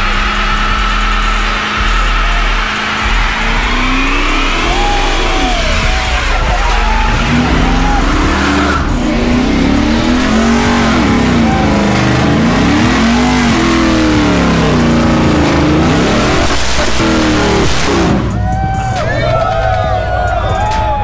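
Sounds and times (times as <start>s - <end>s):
car engine revving hard: 0.0s - 18.4s
spinning tyres rushing: 0.0s - 19.5s.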